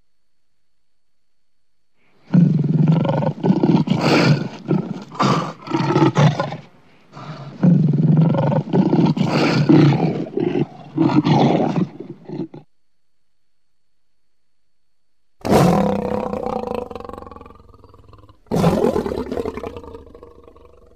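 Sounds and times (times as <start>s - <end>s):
lion roaring: 2.3s - 12.7s, 15.4s - 20.9s.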